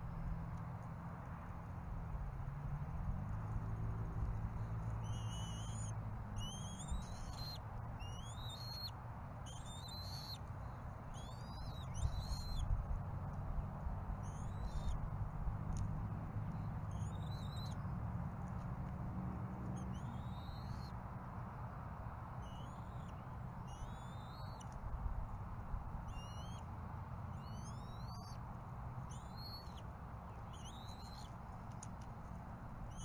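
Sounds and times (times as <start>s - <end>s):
steady outdoor hiss: 0.0s - 33.0s
bird whistling chirps: 5.0s - 8.9s, 9.5s - 10.4s, 11.2s - 12.6s, 19.8s - 20.9s, 22.4s - 24.6s, 26.1s - 26.6s, 27.4s - 28.4s, 29.1s - 29.8s, 30.4s - 31.3s.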